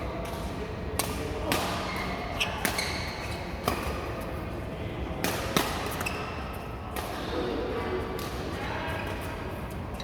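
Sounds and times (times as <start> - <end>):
shoe squeaks: 1.9 - 3.4, 5.9 - 6.5.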